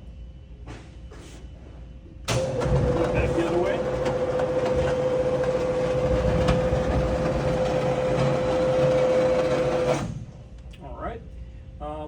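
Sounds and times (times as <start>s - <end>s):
grinder table drive motor hum: 2.4s - 10.1s.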